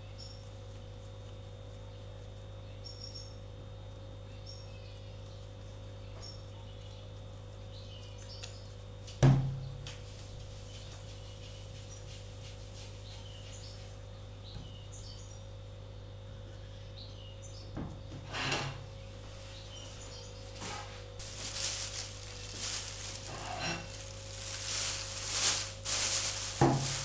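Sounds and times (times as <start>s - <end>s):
steady low hum: 0.0s - 27.0s
small bird chirping: 0.1s - 0.5s, 2.6s - 3.5s, 4.3s - 8.8s, 13.0s - 15.5s.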